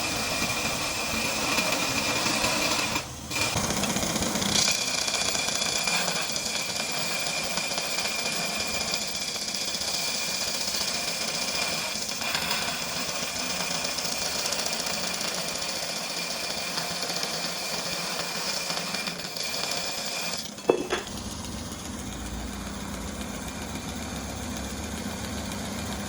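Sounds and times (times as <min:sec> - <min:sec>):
belt grinder whirring: 0:00.0 - 0:26.0.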